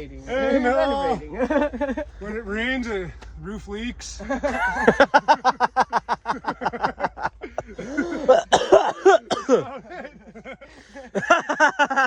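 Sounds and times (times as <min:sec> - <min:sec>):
men coughing: 0:04.2 - 0:05.4, 0:07.4 - 0:11.8.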